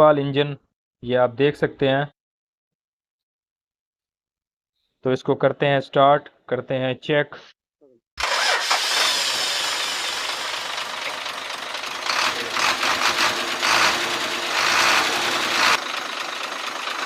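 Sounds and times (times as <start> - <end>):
diesel truck engine knocking: 10.1 - 17.0.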